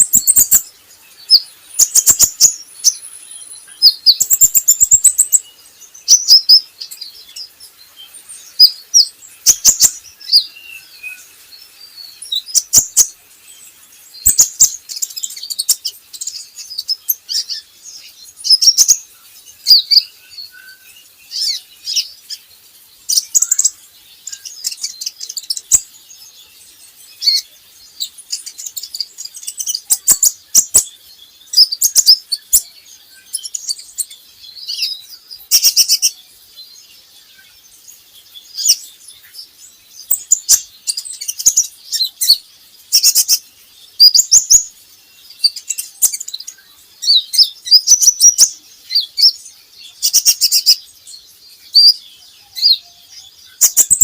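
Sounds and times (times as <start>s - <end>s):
bird chirping and trilling: 0.0s - 54.0s.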